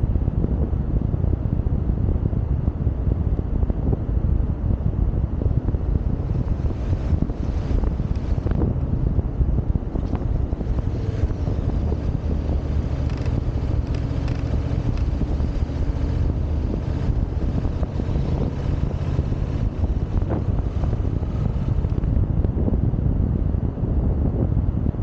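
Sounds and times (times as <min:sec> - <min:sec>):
wind noise on microphone: 0:00.0 - 0:25.0
motorcycle engine running: 0:05.4 - 0:22.7.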